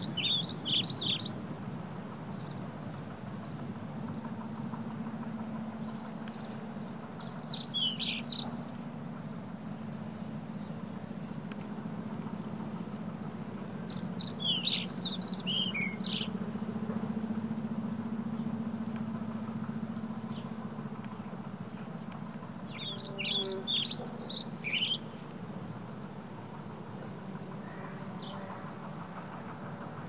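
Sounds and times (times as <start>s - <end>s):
bird chirping: 0.0s - 4.3s, 5.8s - 11.6s, 13.8s - 16.4s, 22.7s - 25.2s
low steady hum: 0.0s - 30.0s.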